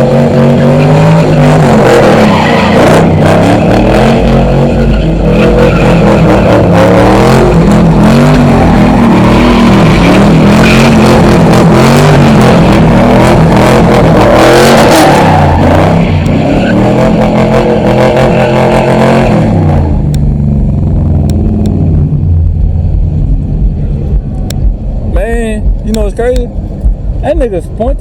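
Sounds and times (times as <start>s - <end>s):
car engine revving: 0.0s - 28.0s
sharp clicks: 25.7s - 27.0s.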